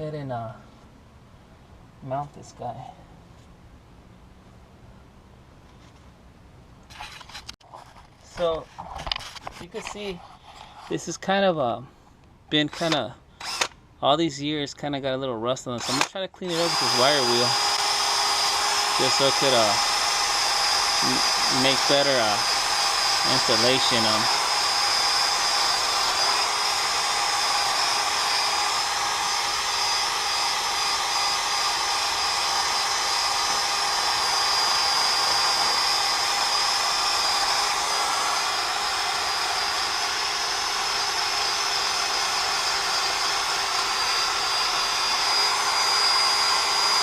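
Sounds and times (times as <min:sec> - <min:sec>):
wire wheel power tool whining: 0:12.6 - 0:13.8, 0:15.8 - 0:47.0.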